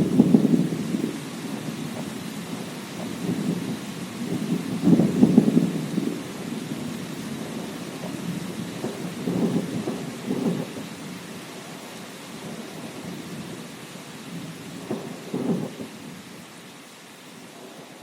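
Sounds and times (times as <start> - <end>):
rolling thunder: 0.0 - 11.2, 14.3 - 16.2
steady rain: 0.0 - 18.0.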